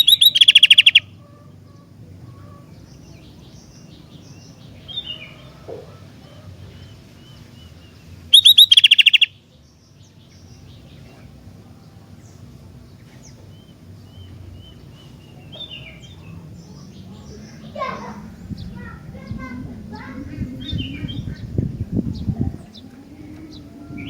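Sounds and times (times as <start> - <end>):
bird rapid repeated notes: 0.0 - 1.1, 8.4 - 9.3
soft bird calls: 0.0 - 24.0.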